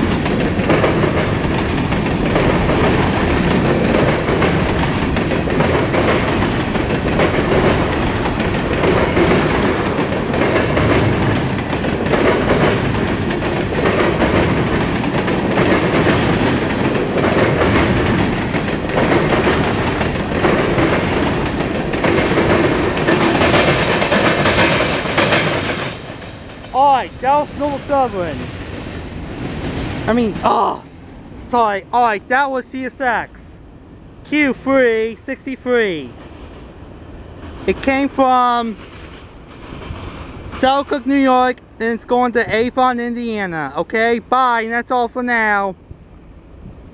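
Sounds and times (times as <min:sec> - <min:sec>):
steel wheels clattering over rails: 0:00.0 - 0:30.5
freight train rumbling past: 0:00.0 - 0:46.9.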